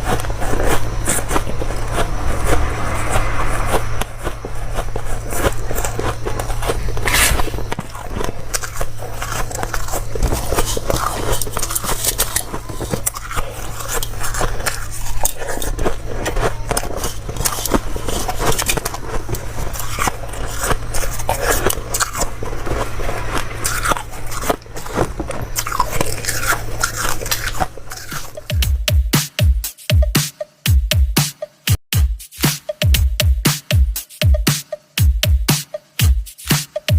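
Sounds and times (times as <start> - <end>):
crunching ice with teeth: 0.0 - 3.2, 4.2 - 28.7
steady low hum: 0.0 - 29.0.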